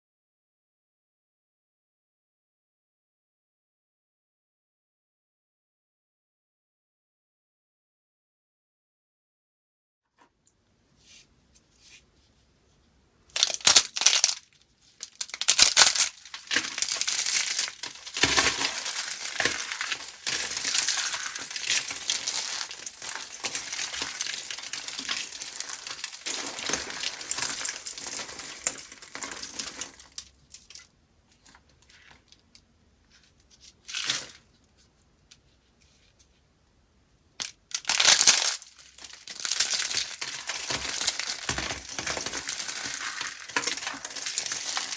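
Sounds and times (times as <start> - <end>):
dry soap crunching: 13.3 - 30.9, 37.4 - 44.9.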